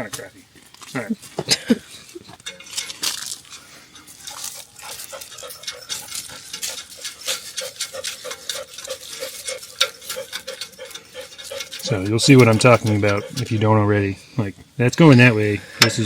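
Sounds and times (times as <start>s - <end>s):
metallic clicks and clinks: 2.3s - 13.6s.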